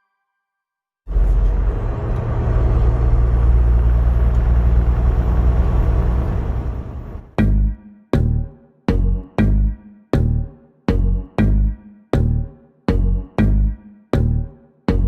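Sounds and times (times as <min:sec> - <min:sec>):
road noise: 0:01.1 - 0:07.4
truck engine drone: 0:01.1 - 0:07.4.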